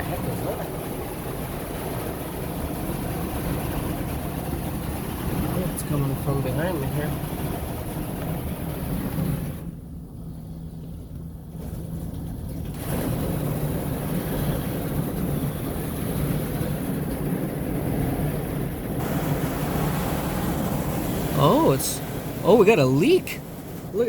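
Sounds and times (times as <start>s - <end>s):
low hum: 0.0s - 23.9s
water spraying from leaking pipe: 19.0s - 24.0s.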